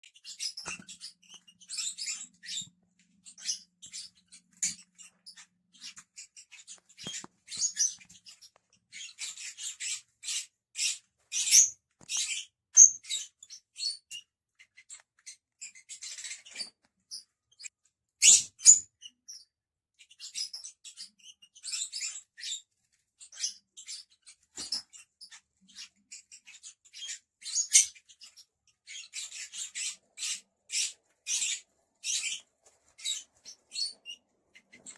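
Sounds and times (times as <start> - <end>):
lovebirds chirping and chattering: 0.0 - 34.9.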